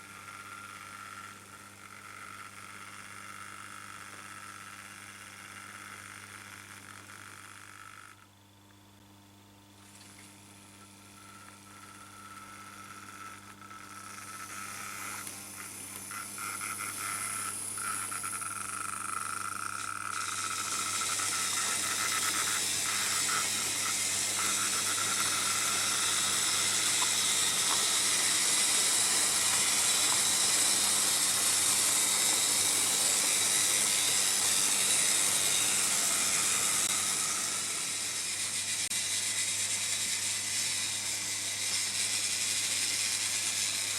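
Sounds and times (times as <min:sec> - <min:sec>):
low electrical hum: 0:00.0 - 0:43.9
model train rattling on track: 0:18.6 - 0:43.9.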